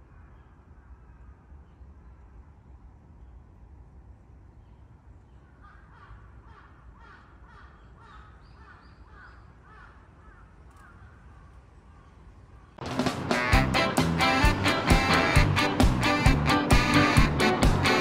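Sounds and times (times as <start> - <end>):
low forest ambience rumble: 0.0 - 18.0
bird calling faintly: 4.4 - 12.8.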